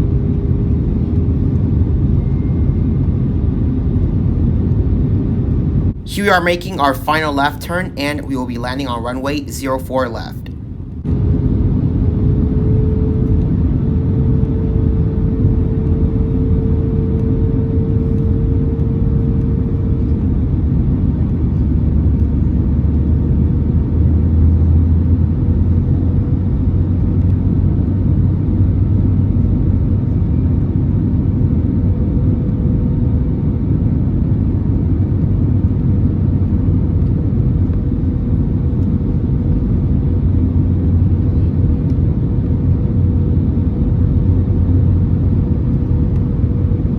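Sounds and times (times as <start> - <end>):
humming tone: 0.0 - 3.7, 11.1 - 20.6
aircraft cabin engine rumble: 0.0 - 46.9.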